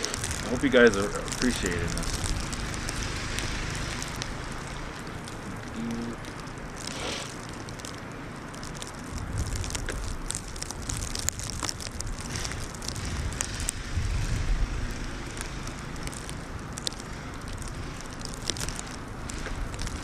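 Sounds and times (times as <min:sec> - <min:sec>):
plastic bag crinkling: 0:00.0 - 0:13.6
wind gusting over microphone: 0:09.0 - 0:20.0.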